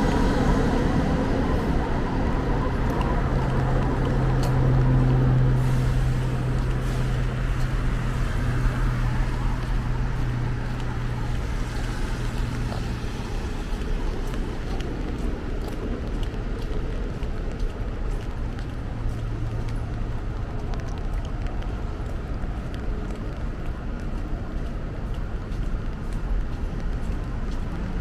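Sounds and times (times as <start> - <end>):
street noise: 0.0 - 28.0
vehicle engine humming: 0.0 - 28.0.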